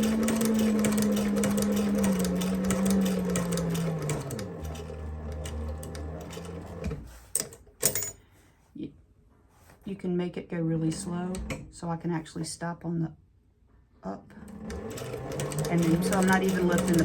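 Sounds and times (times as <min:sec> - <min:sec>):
sewing machine motor humming: 0:00.0 - 0:07.1, 0:14.4 - 0:17.0
needle-stroke clicks: 0:00.0 - 0:07.6, 0:14.5 - 0:17.0.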